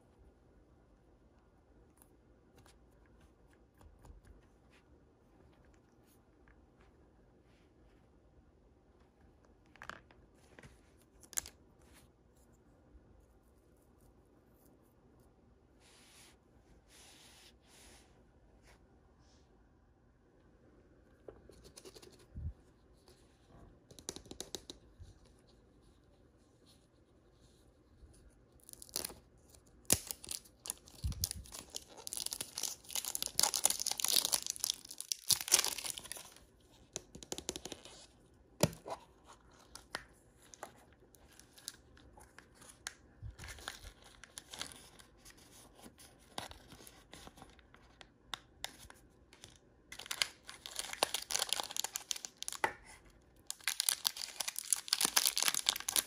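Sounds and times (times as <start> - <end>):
plastic packaging tearing: 29.8 - 36.4, 50.0 - 52.6, 53.5 - 56.0.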